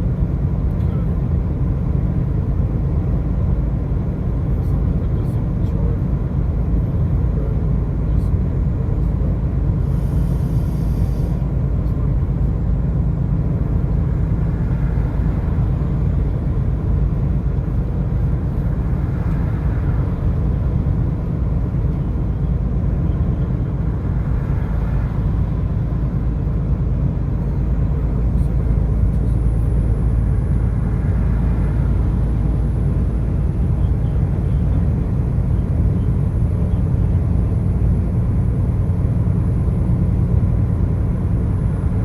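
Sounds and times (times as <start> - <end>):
car road and engine rumble: 0.0 - 42.0.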